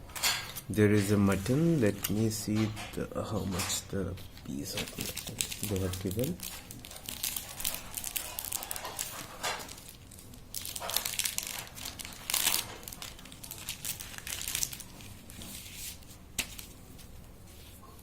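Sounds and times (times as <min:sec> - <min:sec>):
food packaging crinkling: 0:04.4 - 0:17.6.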